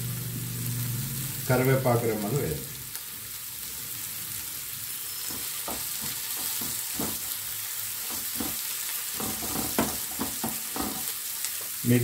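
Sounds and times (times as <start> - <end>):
vegetables sizzling in hot oil: 0.0 - 12.0
spatula scraping and stirring: 5.0 - 7.4, 8.0 - 11.2.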